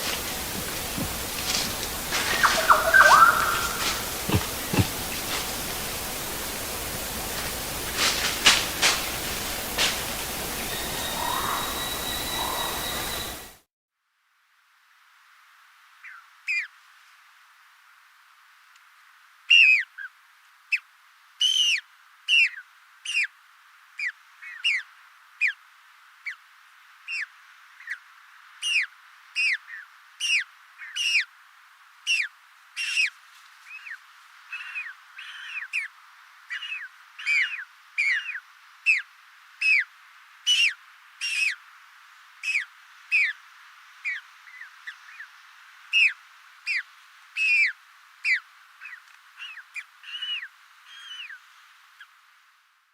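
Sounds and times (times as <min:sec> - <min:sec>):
bird shrill whistles: 0:02.2 - 0:03.8, 0:10.6 - 0:13.6.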